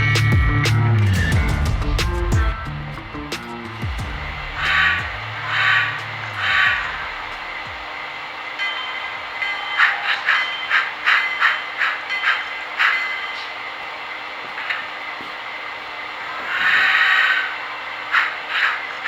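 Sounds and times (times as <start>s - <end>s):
steam locomotive chuffing: 0.1s - 19.0s
steam hiss: 3.2s - 19.0s.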